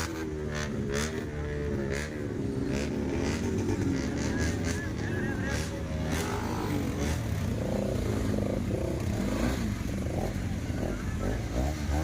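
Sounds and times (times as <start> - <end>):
motorcycle engine running: 0.0 - 12.0
indistinct voices talking: 2.2 - 8.8.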